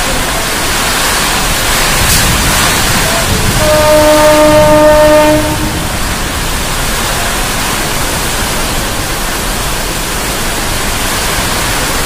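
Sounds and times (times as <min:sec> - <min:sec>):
heavy rain hissing: 0:00.0 - 0:12.0
train horn: 0:03.0 - 0:06.1.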